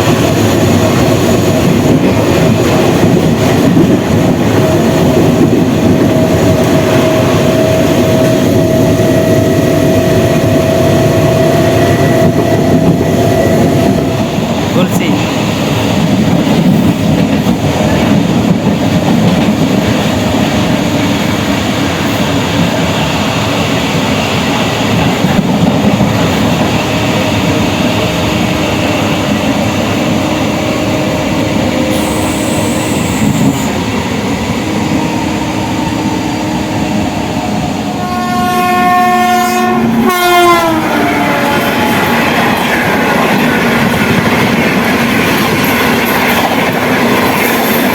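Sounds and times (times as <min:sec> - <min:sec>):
train wheels on rails: 0:00.0 - 0:47.9
train horn: 0:06.6 - 0:14.2, 0:37.8 - 0:43.3.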